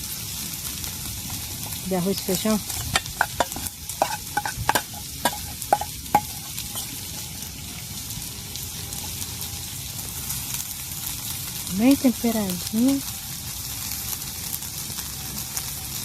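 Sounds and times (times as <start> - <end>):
rice and beans sizzling in a pan: 0.0 - 16.0
spoon scraping against a pan: 1.3 - 7.3.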